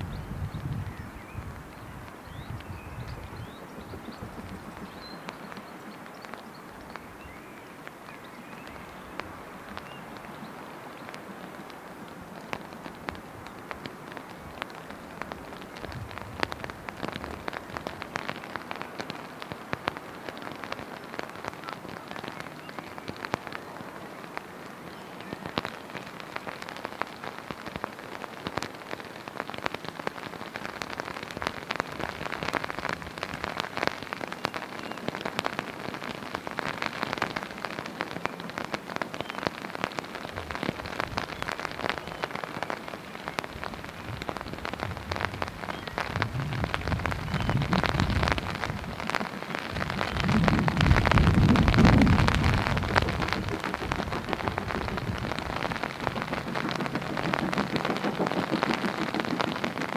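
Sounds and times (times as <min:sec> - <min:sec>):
steady rain pattering: 0:00.0 - 0:59.9.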